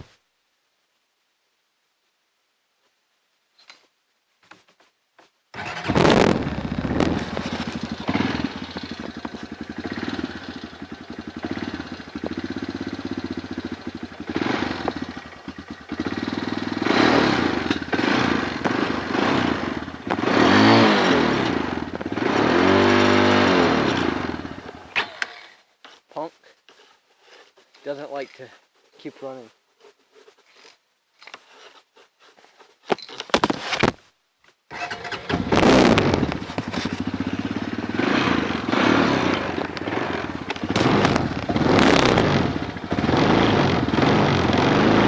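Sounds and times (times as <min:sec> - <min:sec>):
engine starting and revving: 0:05.6 - 0:25.6, 0:34.7 - 0:45.0.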